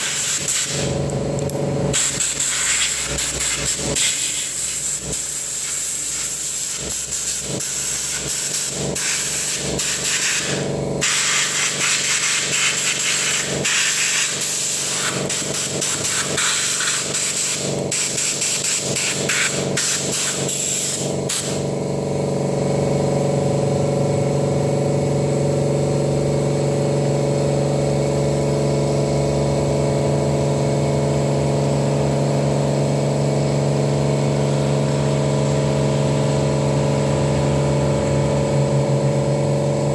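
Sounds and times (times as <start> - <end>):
compressed air hissing blasts: 0.0 - 1.0, 1.9 - 21.7
compressor motor humming: 0.0 - 39.9.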